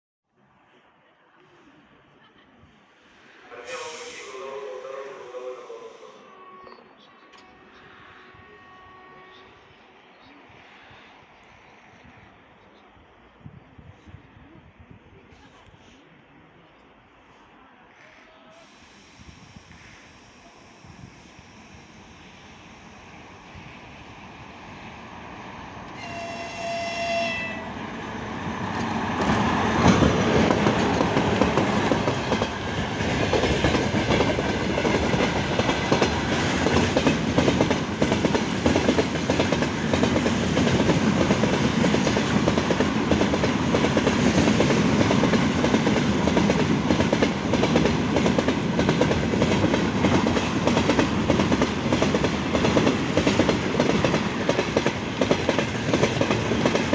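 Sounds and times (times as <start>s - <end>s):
train horn blast: 3.5s - 9.9s, 26.0s - 27.8s
train wheels clattering on rails: 28.7s - 56.9s.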